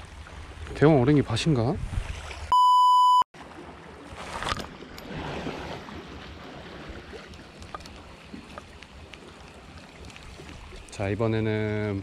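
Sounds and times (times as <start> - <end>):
sea lapping against rocks: 3.4 - 11.0.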